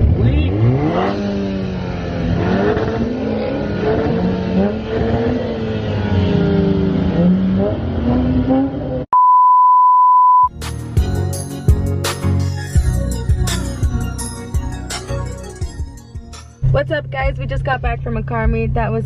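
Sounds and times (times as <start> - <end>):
car engine revving: 0.0 - 9.1
steady high beep tone: 9.1 - 10.5
music: 10.5 - 19.0.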